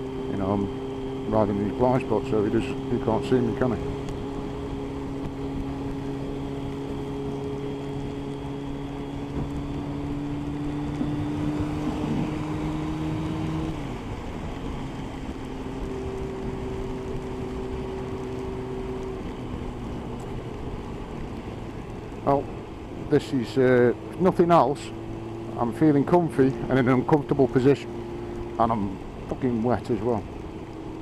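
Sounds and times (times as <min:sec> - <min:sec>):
motorcycle engine running: 0:00.0 - 0:31.0
rain noise: 0:00.0 - 0:31.0
wind noise: 0:09.1 - 0:15.7.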